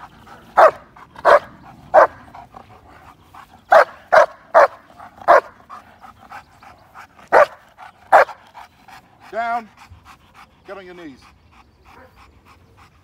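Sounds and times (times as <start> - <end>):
dog barking: 0.6 - 2.2, 3.7 - 5.6, 7.3 - 8.4.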